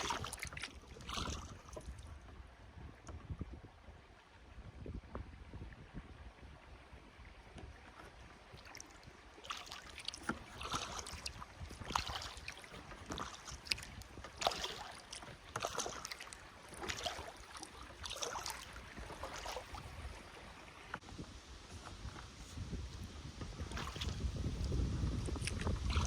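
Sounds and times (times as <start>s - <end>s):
paddle splashing in water: 0.0s - 26.0s
low wind rumble: 1.2s - 7.5s, 19.7s - 26.0s.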